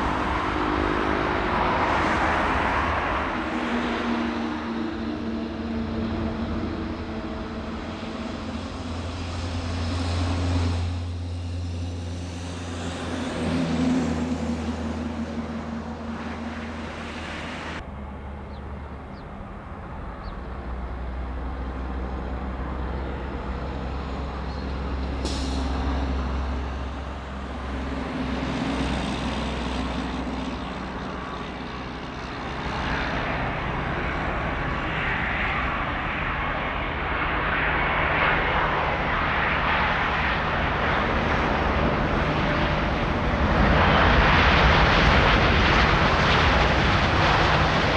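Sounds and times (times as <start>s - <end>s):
jet engines droning: 0.0s - 47.9s
engine hiss: 18.8s - 27.8s.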